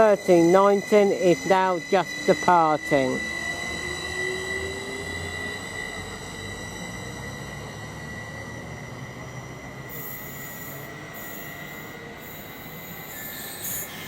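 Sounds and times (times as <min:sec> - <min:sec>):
steady high-pitched tone: 0:00.0 - 0:14.0
train low rumble: 0:00.0 - 0:14.0
very high hiss or squeal: 0:09.8 - 0:14.0.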